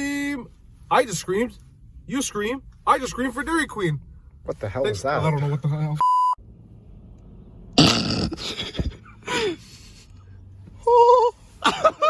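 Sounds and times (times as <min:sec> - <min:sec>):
man's cough-like burst: 0:07.8 - 0:09.6.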